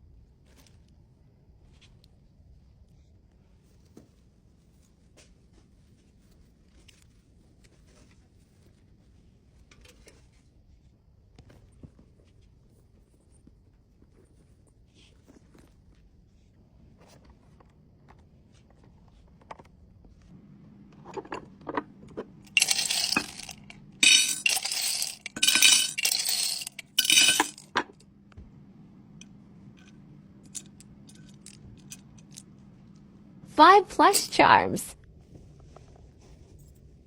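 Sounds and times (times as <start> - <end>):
metal trinkets clinking and jangling: 22.5 - 27.7, 29.8 - 32.5.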